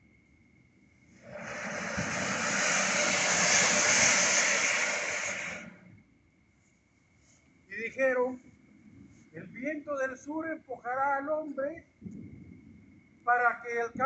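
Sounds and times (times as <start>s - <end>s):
hissing rush of noise: 1.1s - 6.0s.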